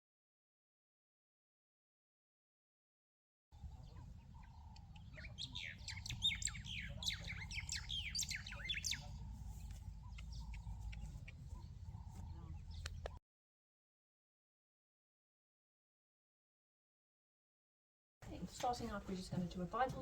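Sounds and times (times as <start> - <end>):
small birds chirping: 3.6 - 13.2
steady low rumble: 3.6 - 13.2.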